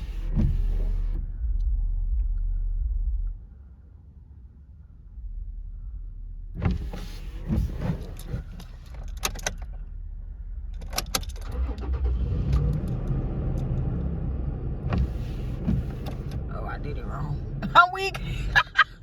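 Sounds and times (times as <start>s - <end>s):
steady low rumble: 0.0s - 19.0s
car keys jangling and clicking: 7.6s - 9.8s, 10.7s - 12.0s.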